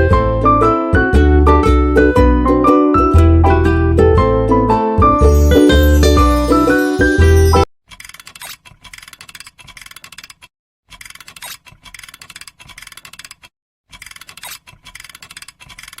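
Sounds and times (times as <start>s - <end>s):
music: 0.0s - 7.7s.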